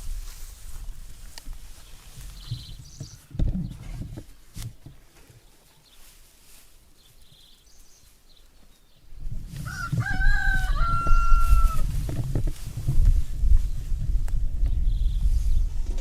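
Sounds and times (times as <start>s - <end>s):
rooster crowing: 9.6s - 12.0s.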